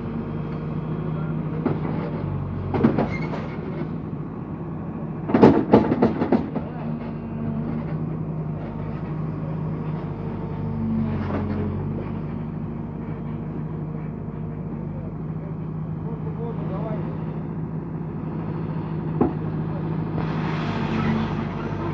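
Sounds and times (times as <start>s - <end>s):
engine running: 7.0s - 21.9s.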